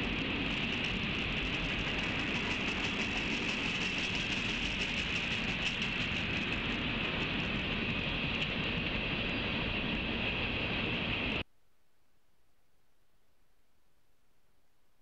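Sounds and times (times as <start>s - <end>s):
freight train rolling past: 0.0s - 11.4s.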